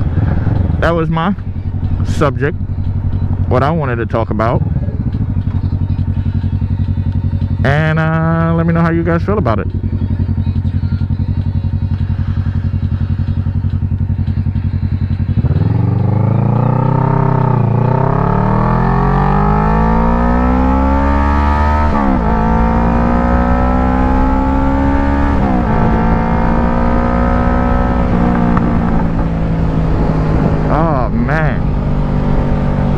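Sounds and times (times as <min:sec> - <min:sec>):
motorcycle engine accelerating: 0:00.0 - 0:32.9.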